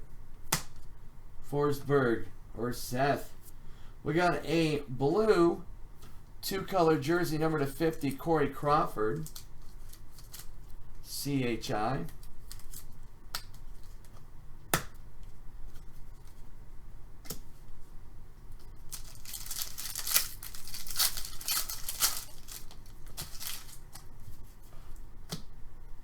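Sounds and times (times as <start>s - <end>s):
card packs tearing and crinkling: 12.2s - 13.0s, 18.9s - 24.1s
cards clicking: 18.9s - 24.1s.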